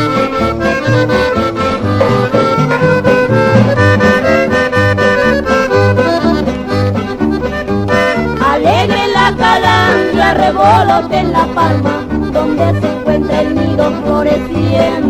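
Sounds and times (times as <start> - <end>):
accordion melody: 0.0 - 15.0
pulsing bass accompaniment: 0.0 - 15.0.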